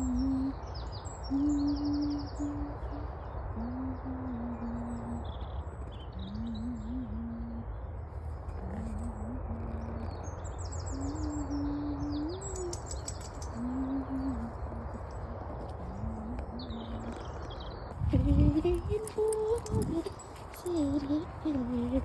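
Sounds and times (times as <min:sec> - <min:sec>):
low outdoor rumble: 0:00.0 - 0:22.0
small birds chirping: 0:00.0 - 0:22.0
low wavering call: 0:01.2 - 0:04.8, 0:10.9 - 0:17.2.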